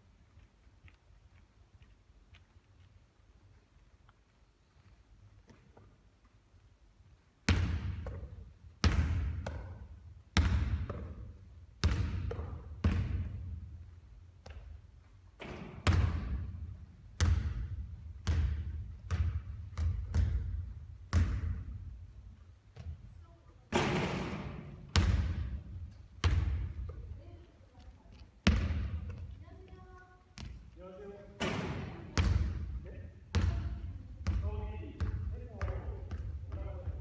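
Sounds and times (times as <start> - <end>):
basketball bouncing on court floor: 7.4 - 23.1, 23.7 - 37.0.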